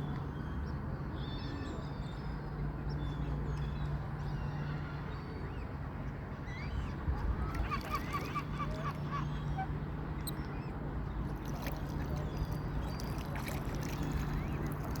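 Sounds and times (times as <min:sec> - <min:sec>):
waterfowl calling: 0:07.5 - 0:09.7.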